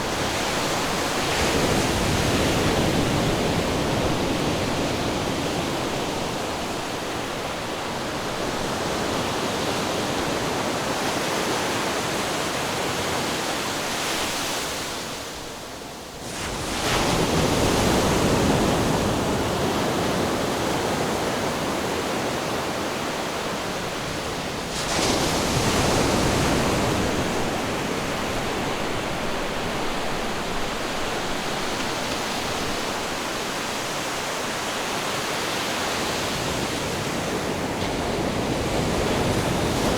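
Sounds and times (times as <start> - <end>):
ocean waves breaking: 0.0 - 11.0, 20.9 - 39.9.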